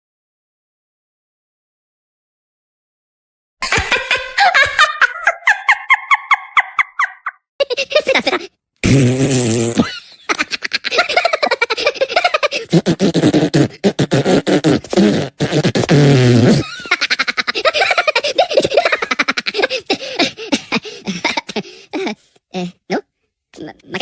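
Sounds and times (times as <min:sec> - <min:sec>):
person making rapid vocal noises: 0:03.6 - 0:07.3.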